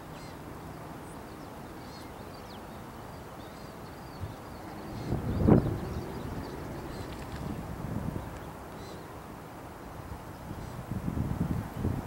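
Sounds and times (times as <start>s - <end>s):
outdoor hiss: 0.0s - 12.0s.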